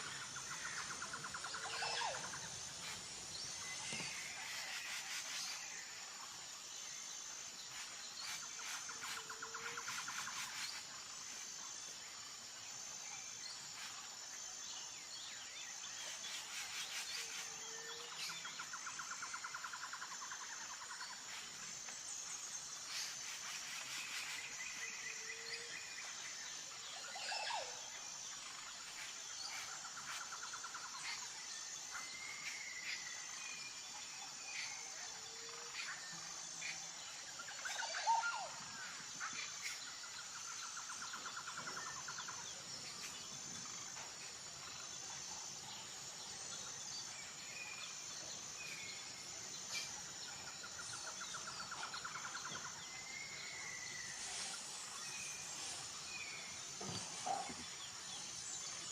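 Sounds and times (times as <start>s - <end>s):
birds chirping and trilling: 0.0s - 6.0s, 46.6s - 58.9s
high insect drone: 0.0s - 58.9s.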